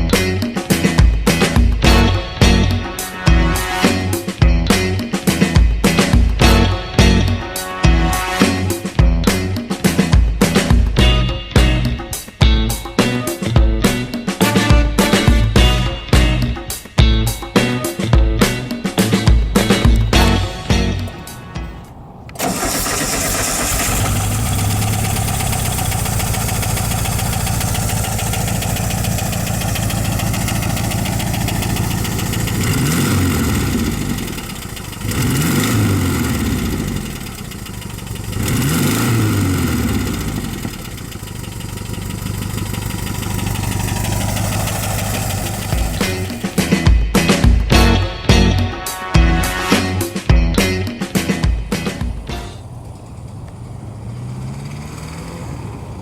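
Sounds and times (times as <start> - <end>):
engine revving: 0.0 - 12.1, 17.3 - 47.4, 50.6 - 56.0
van engine starting and idling: 19.0 - 46.8, 51.1 - 56.0.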